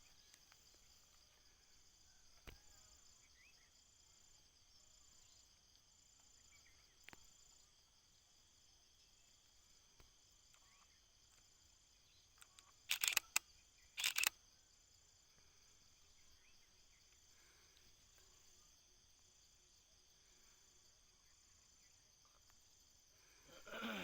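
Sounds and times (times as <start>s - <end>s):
high-pitched insect chorus: 0.0s - 24.0s
sharp clicks: 12.3s - 14.4s.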